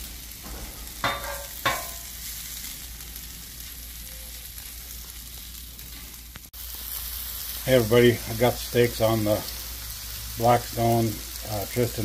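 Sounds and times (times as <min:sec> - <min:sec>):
beans sizzling on griddle: 0:00.0 - 0:12.0
metal spatula clinking on griddle: 0:00.4 - 0:02.1.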